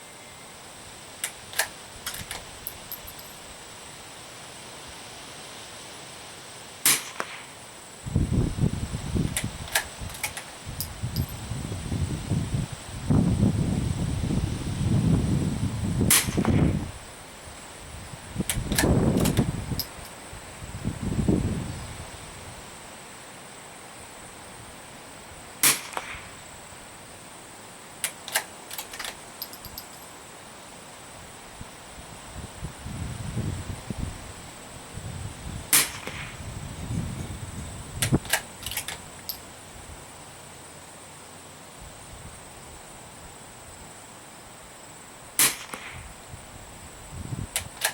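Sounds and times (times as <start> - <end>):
rifle bolt clicking: 1.2 - 3.2, 9.4 - 10.5, 18.5 - 20.1, 28.0 - 29.9, 38.0 - 39.4, 47.6 - 47.9
rifle shot: 6.8 - 7.5, 16.1 - 16.6, 25.6 - 26.3, 35.7 - 36.4, 45.4 - 46.0
wind buffeting microphone: 8.1 - 17.1, 17.8 - 22.6, 32.0 - 39.1, 46.0 - 47.8
light clicks: 9.3 - 11.3, 38.0 - 39.4.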